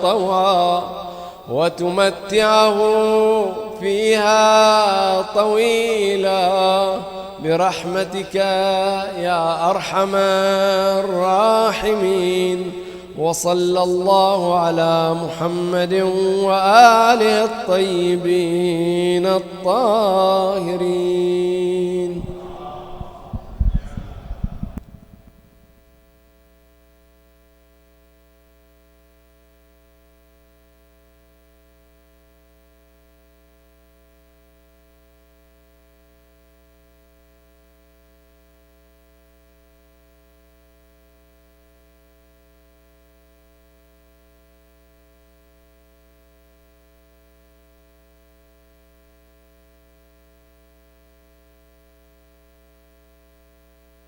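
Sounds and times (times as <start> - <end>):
echo of spoken words: 0.0 - 24.8
electrical mains hum: 0.0 - 54.0.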